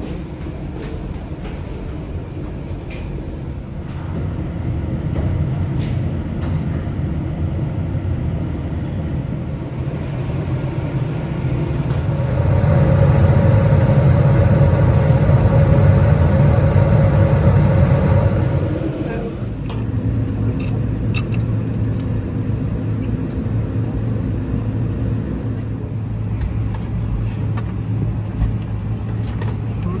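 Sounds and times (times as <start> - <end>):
humming tone: 8.7 - 19.8
vehicle interior rumble: 8.7 - 19.9.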